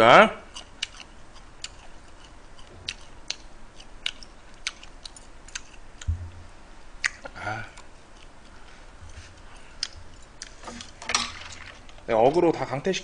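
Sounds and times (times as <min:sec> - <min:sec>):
wet chewing clicks and smacks: 0:00.5 - 0:06.2, 0:07.0 - 0:08.6, 0:09.6 - 0:11.0
low thump: 0:06.1 - 0:06.5.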